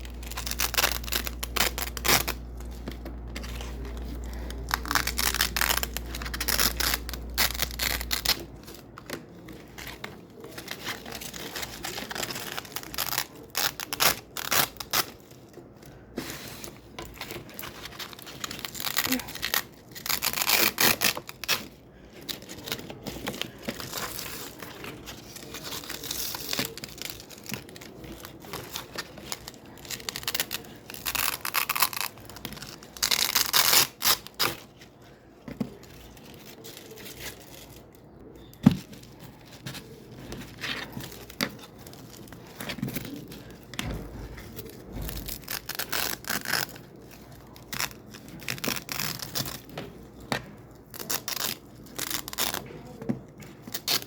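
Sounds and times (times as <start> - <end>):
velcro ripping apart: 29.8 - 34.5.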